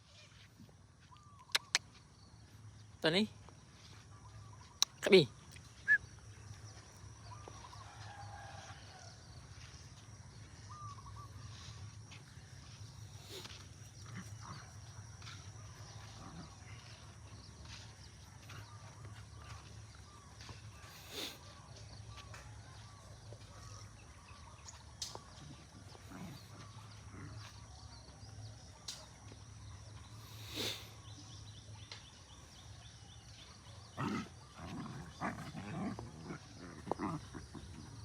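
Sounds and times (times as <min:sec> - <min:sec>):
dog growling: 0:33.9 - 0:38.0.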